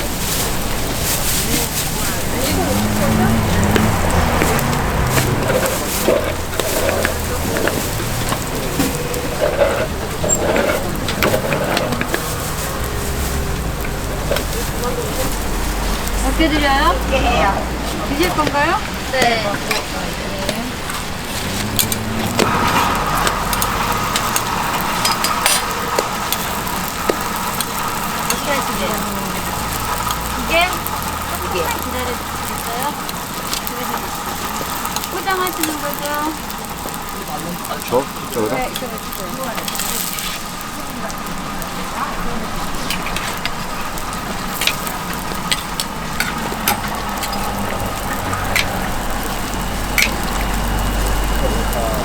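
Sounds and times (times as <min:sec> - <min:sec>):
faint sizzling on a griddle: 0:00.0 - 0:52.0.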